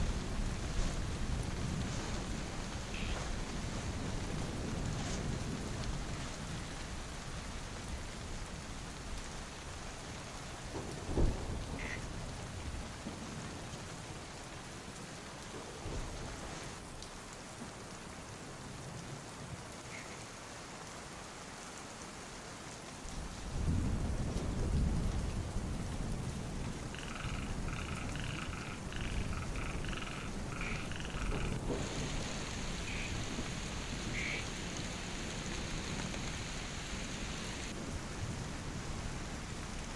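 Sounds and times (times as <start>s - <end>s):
low rumble of thunder: 0.0s - 9.2s, 10.5s - 13.8s, 23.1s - 39.9s
heavy rain: 0.0s - 39.9s
frogs croaking: 2.9s - 3.3s, 11.7s - 12.0s, 26.8s - 37.7s
sharp thunder crack: 31.3s - 36.5s.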